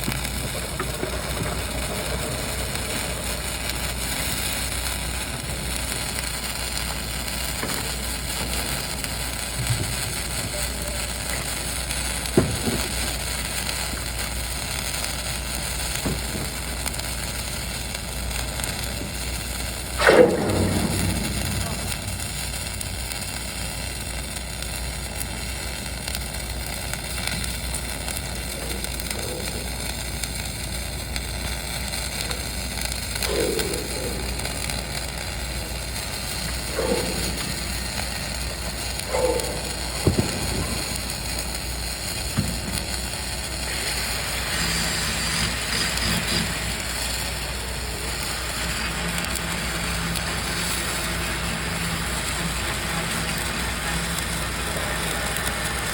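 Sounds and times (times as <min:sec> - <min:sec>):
sharp pops: 0:00.0 - 0:10.4, 0:11.8 - 0:25.4, 0:31.2 - 0:43.7
machine hum: 0:00.0 - 0:25.0, 0:27.5 - 0:46.8
welding arc crackling and hissing: 0:00.0 - 0:55.9.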